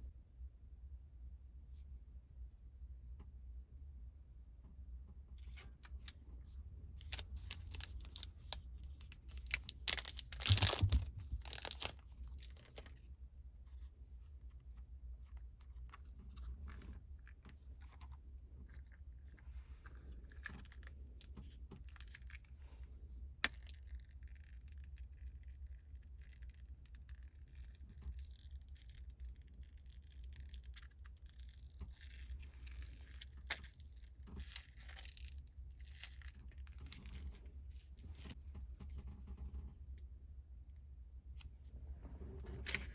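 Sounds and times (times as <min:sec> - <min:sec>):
low steady hum: 0:00.0 - 0:42.9
packaging rustling and tearing: 0:07.0 - 0:13.0, 0:27.6 - 0:37.2.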